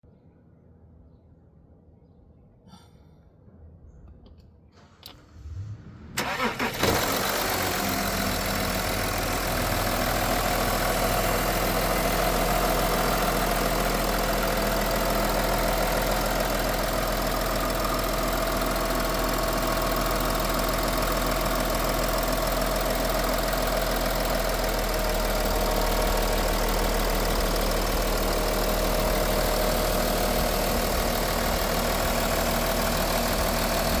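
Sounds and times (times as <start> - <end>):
car engine idling: 4.8 - 34.0
engine cranking: 6.2 - 24.8.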